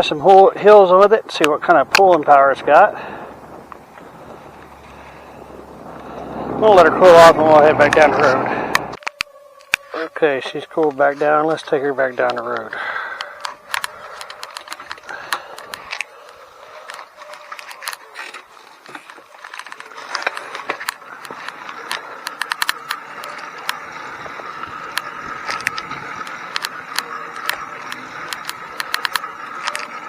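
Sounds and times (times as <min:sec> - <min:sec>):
two-stroke engine rattling: 0:00.7 - 0:09.0, 0:11.6 - 0:30.0
steady hum: 0:02.6 - 0:16.6.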